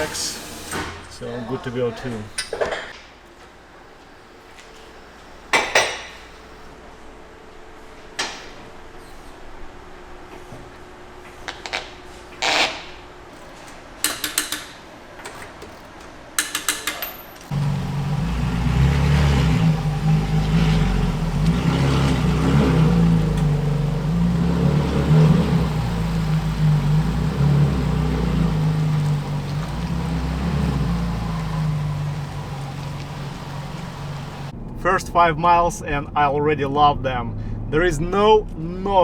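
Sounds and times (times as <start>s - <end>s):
short rattling runs: 17.5s - 34.5s
car driving low drone: 17.5s - 34.8s.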